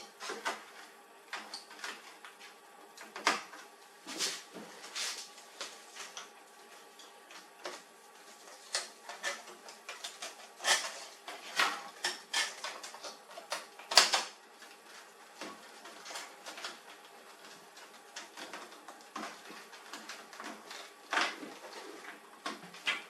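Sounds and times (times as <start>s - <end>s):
printer parts clicking and clacking: 8.7s - 14.4s.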